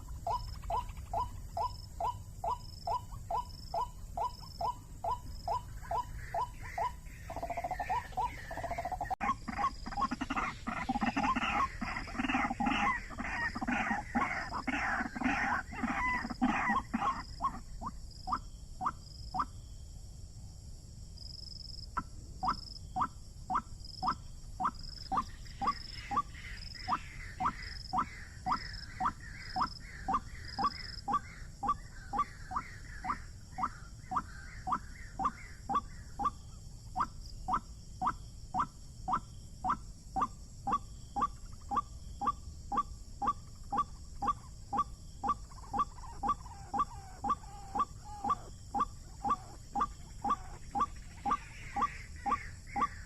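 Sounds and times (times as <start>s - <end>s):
waterhen falling call: 5.0s - 17.6s.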